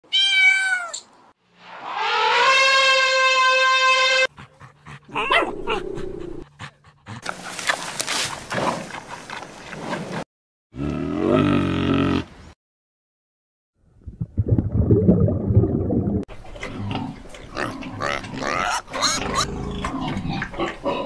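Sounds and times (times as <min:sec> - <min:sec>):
dog crying: 0:05.1 - 0:06.0
dog whining: 0:05.1 - 0:06.4.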